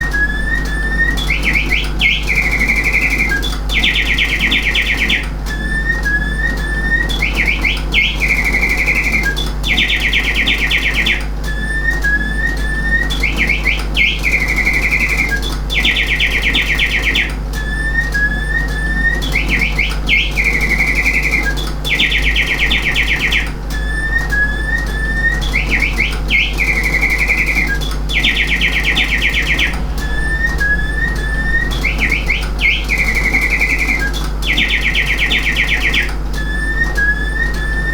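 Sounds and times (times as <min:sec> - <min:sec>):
mechanical birdsong chirps and trills: 0:00.0 - 0:37.9
low steady hum: 0:19.0 - 0:37.9.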